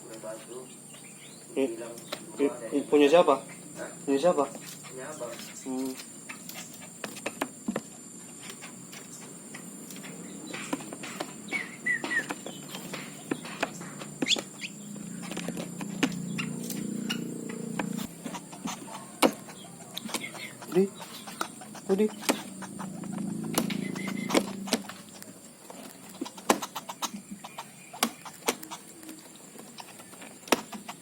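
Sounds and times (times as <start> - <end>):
baby birds chirping: 0.0 - 31.0
buzzing begging calls: 0.2 - 31.0.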